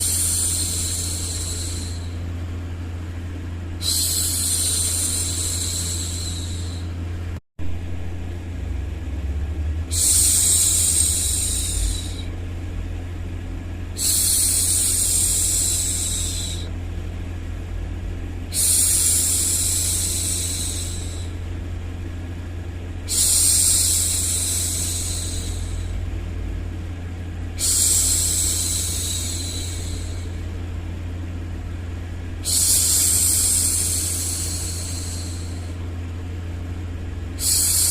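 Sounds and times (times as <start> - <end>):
low background rumble: 0.0 - 37.9.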